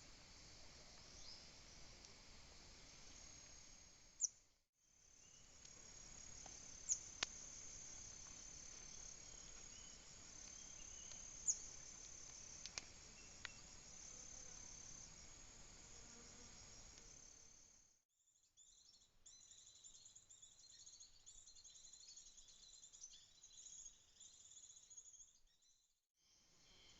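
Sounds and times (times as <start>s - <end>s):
high-pitched insect song: 5.0s - 18.0s
bird chirps: 18.3s - 25.9s.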